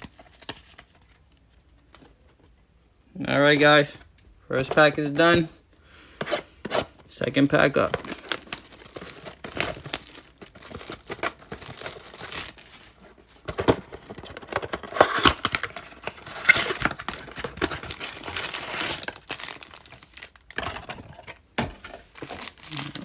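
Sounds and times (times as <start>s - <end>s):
plastic wrapper tearing and crinkling: 7.2s - 13.0s, 14.1s - 20.6s, 22.1s - 23.0s.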